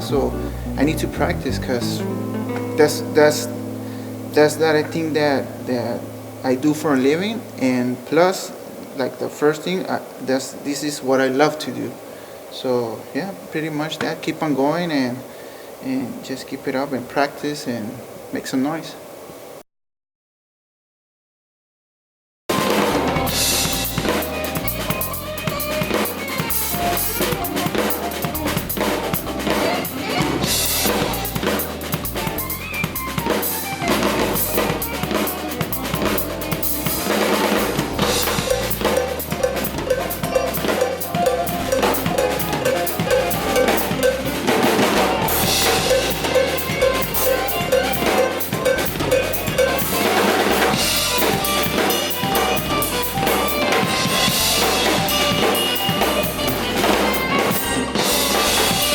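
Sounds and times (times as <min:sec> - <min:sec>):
cymbal crashes: 0:02.8 - 0:07.7, 0:22.5 - 0:58.9
bass drum and snare hits: 0:30.2 - 0:57.3.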